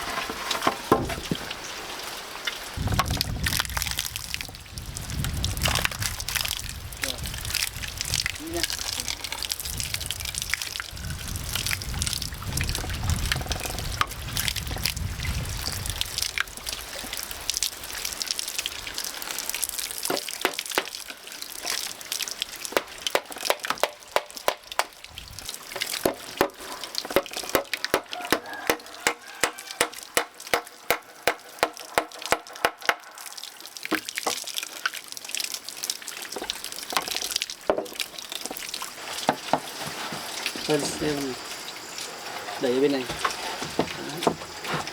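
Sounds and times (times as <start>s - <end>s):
water rushing: 0.0s - 44.9s
tool blows knocking: 27.2s - 33.0s.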